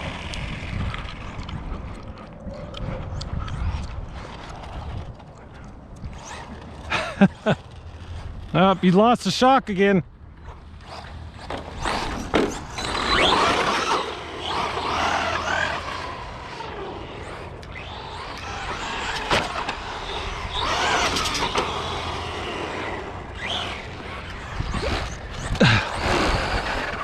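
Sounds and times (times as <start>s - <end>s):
rc car motor whine: 0.0s - 1.8s, 6.0s - 8.9s, 10.3s - 27.0s.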